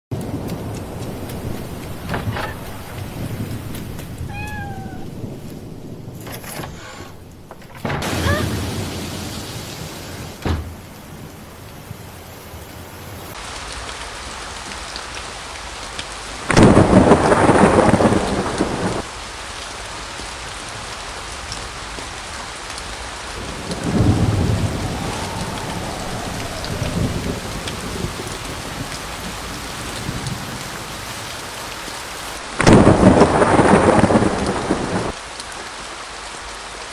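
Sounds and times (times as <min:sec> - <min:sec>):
thunder cracks: 0:00.1 - 0:12.0, 0:16.4 - 0:19.1, 0:23.0 - 0:31.4, 0:32.6 - 0:35.2
rolling thunder rumble: 0:00.1 - 0:35.2
steady rain: 0:00.1 - 0:36.9.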